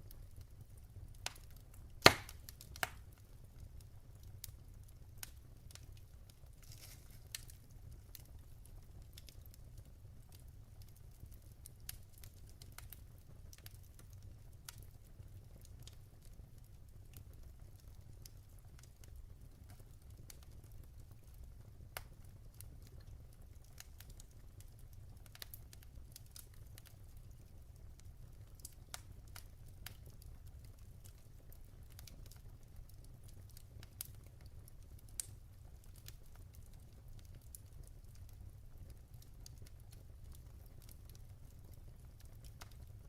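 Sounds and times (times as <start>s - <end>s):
wood fire crackling and popping: 0.0s - 43.0s.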